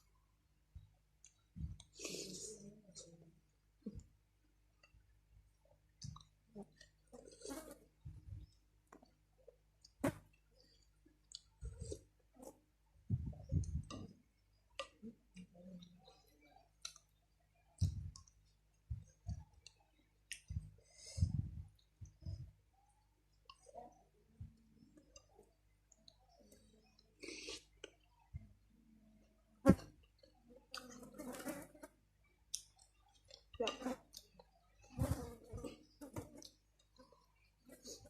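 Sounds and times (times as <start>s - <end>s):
wet mouth clicks: 20.3s - 20.6s.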